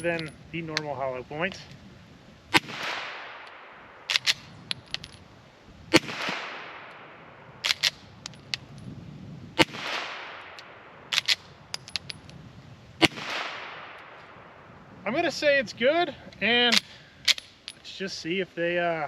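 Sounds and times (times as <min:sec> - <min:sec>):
faint metallic clinks: 0:00.0 - 0:00.4, 0:17.3 - 0:17.9
suppressed pistol shots: 0:02.5 - 0:04.6, 0:05.9 - 0:08.0, 0:09.6 - 0:11.4, 0:13.0 - 0:14.4.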